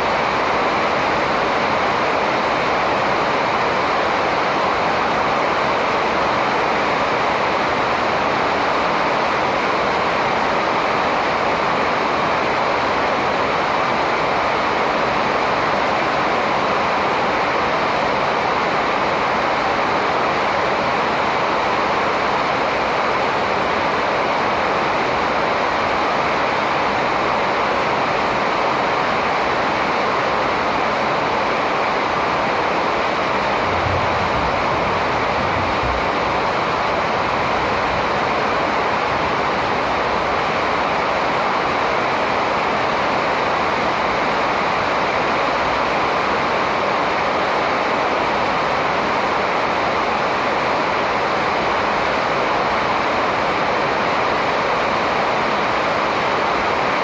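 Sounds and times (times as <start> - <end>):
steady rushing noise: 30.6 - 52.3.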